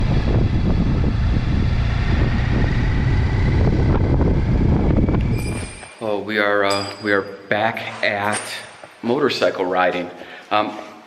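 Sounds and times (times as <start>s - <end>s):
wind rushing over microphone: 0.0s - 6.2s
motorcycle low rumble: 0.0s - 7.0s
faint whine: 0.0s - 7.5s.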